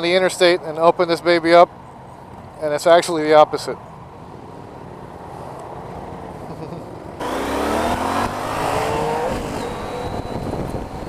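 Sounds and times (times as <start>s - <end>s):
road and wind noise: 0.0s - 11.0s
motorcycle engine accelerating: 7.2s - 11.0s.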